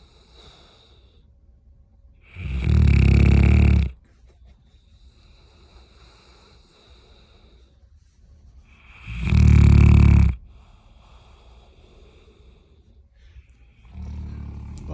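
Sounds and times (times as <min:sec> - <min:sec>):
dog snoring loudly: 0:02.2 - 0:04.0, 0:08.8 - 0:10.4, 0:13.8 - 0:14.9
dog breathing quietly: 0:02.2 - 0:14.9.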